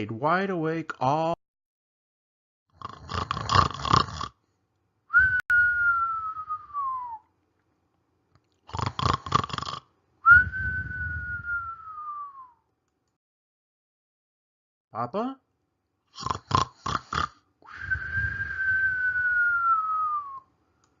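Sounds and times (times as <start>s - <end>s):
cartoon rattling snore: 2.7s - 4.4s, 8.7s - 9.9s, 16.1s - 17.4s
long falling whistle: 5.1s - 7.2s, 10.3s - 12.6s, 17.7s - 20.5s.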